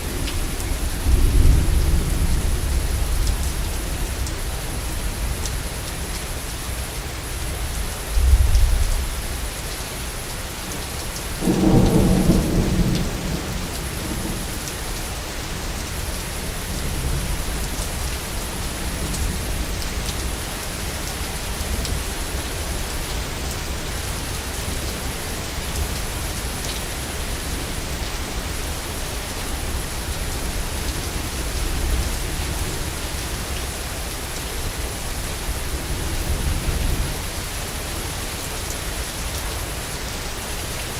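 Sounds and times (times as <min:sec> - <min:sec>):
thunder rumbling: 0:00.0 - 0:04.5, 0:11.4 - 0:17.7
heavy rain: 0:00.0 - 0:40.9.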